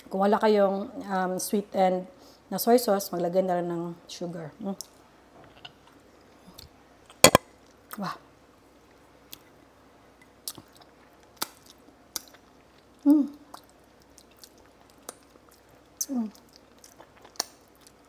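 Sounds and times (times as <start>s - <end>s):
person chewing food: 7.1s - 7.4s, 10.4s - 18.0s.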